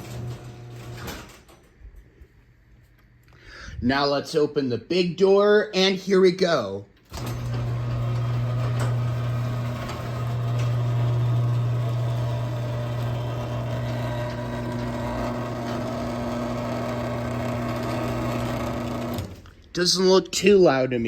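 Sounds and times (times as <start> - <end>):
garage door opener motor hum: 0.0 - 1.6, 7.0 - 19.5.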